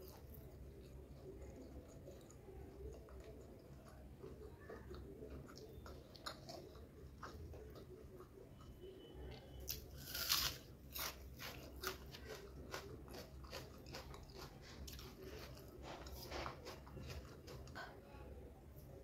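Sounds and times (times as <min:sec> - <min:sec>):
person chewing: 0:00.0 - 0:18.0
person crunching food: 0:05.4 - 0:08.3, 0:09.6 - 0:17.8.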